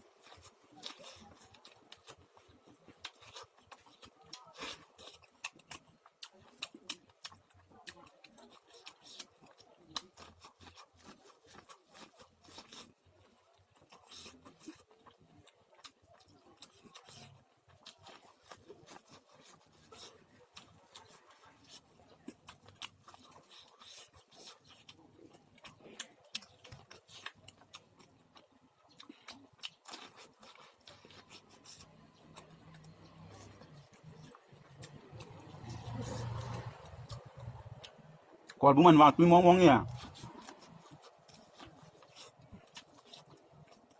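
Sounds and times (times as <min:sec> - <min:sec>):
soft mouth sounds: 0:00.0 - 0:38.7
popcorn crunching while chewed: 0:00.0 - 0:43.9.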